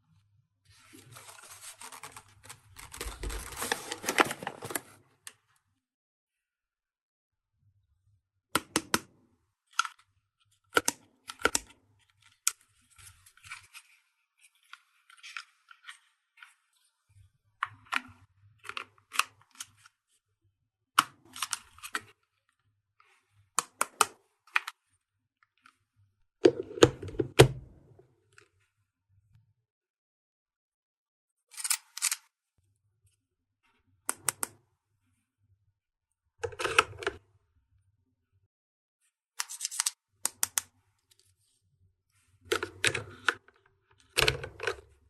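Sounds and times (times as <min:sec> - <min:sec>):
packaging crinkling: 0:01.0 - 0:05.0.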